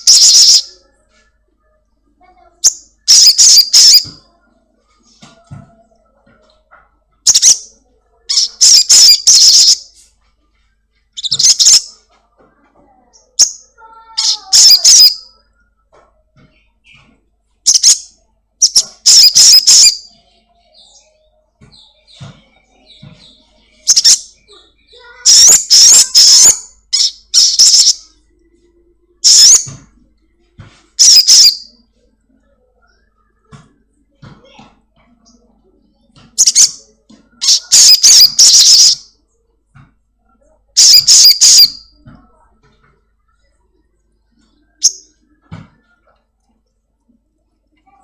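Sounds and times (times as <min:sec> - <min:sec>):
sunbird high-pitched chirps: 0:00.0 - 0:00.8, 0:02.6 - 0:04.1, 0:07.3 - 0:07.7, 0:08.3 - 0:09.9, 0:11.2 - 0:11.9, 0:13.2 - 0:15.3, 0:17.7 - 0:28.1, 0:29.2 - 0:29.7, 0:31.0 - 0:31.8, 0:36.4 - 0:36.8, 0:37.4 - 0:39.1, 0:40.8 - 0:42.0.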